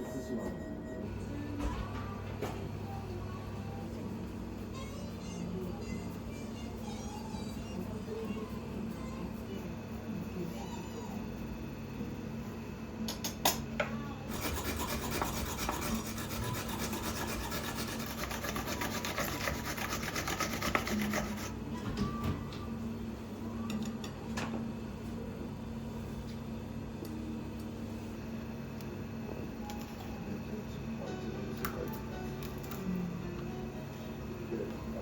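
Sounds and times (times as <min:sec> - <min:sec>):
food scraping: 0:14.3 - 0:21.6.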